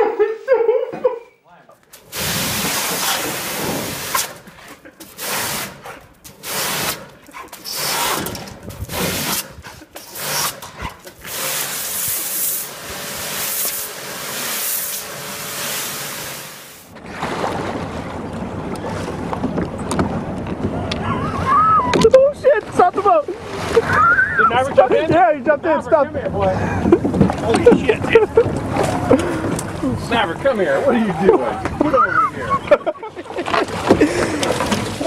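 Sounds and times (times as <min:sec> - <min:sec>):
pressure washer jet hissing: 0:02.0 - 0:04.4, 0:05.2 - 0:05.8, 0:06.4 - 0:08.3, 0:08.9 - 0:10.6, 0:11.2 - 0:16.9
wind and sea water rushing: 0:02.0 - 0:04.6, 0:11.2 - 0:35.0.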